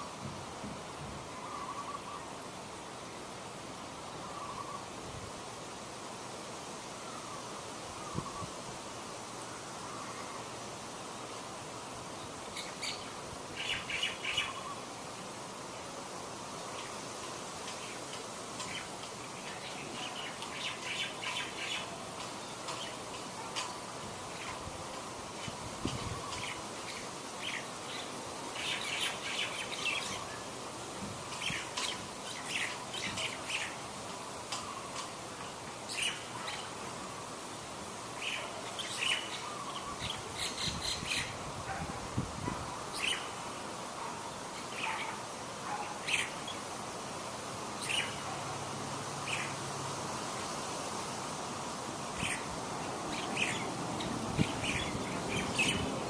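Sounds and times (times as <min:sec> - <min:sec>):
steady background hiss: 0:00.0 - 0:56.0
birds chirping: 0:09.5 - 0:48.6, 0:49.2 - 0:49.7, 0:51.6 - 0:56.0.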